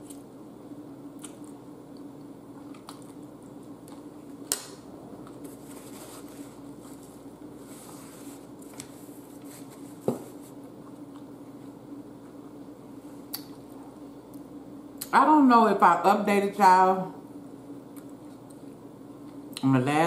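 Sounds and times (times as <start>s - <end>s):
steady low hum: 0.0s - 20.0s
chewing and wet mouth sounds: 1.1s - 4.4s.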